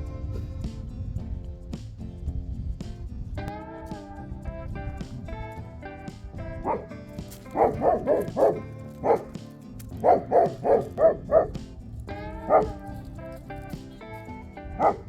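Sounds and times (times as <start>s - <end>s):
guitar background music: 0.0s - 15.0s
dog barking: 6.6s - 13.4s, 14.7s - 15.0s.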